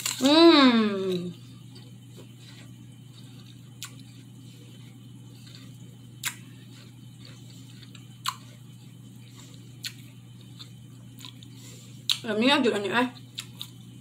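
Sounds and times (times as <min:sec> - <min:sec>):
low steady hum: 0:00.0 - 0:14.0
crisp apple chewing clicks: 0:01.1 - 0:04.2, 0:05.4 - 0:08.6, 0:09.8 - 0:12.3, 0:13.2 - 0:13.9.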